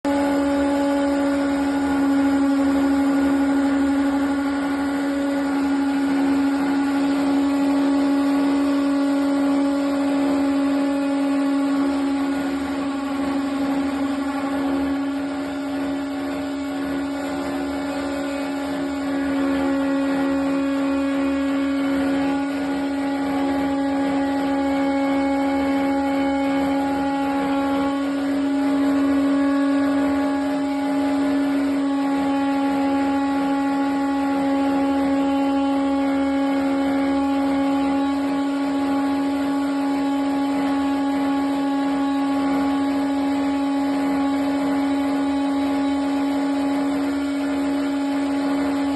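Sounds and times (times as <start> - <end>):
gas boiler humming: 0.0 - 48.9.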